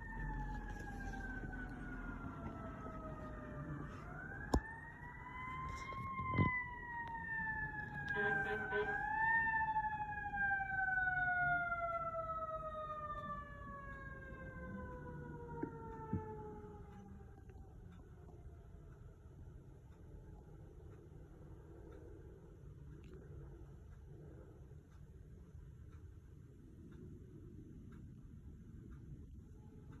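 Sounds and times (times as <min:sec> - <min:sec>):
fire truck siren wailing: 0:00.0 - 0:19.0.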